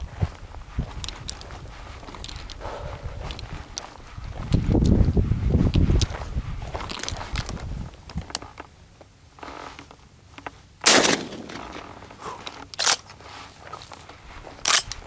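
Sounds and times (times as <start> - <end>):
shotgun shots: 10.8 - 12.1.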